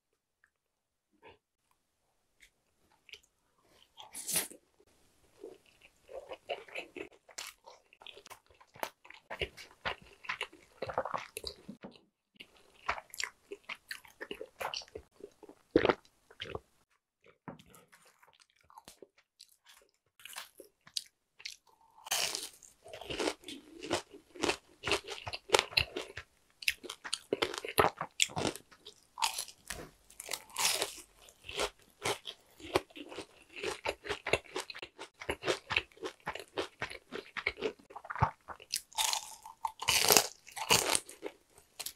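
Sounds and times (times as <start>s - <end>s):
chewing: 5.5s - 16.6s, 17.6s - 41.9s
crisp crunches of fried shrimp: 18.1s - 41.9s.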